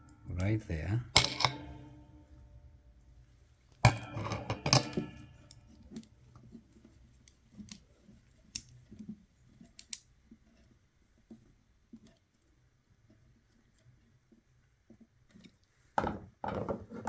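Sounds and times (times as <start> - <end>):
metal parts clinking: 1.2 - 2.0.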